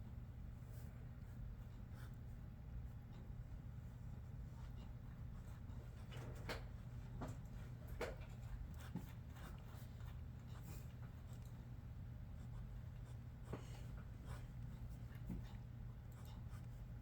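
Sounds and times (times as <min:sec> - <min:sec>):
pencil scratching on paper: 0:12.4 - 0:17.0.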